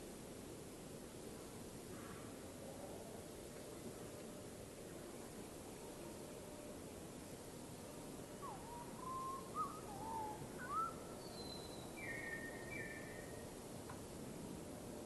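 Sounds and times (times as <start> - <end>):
background hiss: 0.0 - 15.0
bird whistling: 8.4 - 13.2.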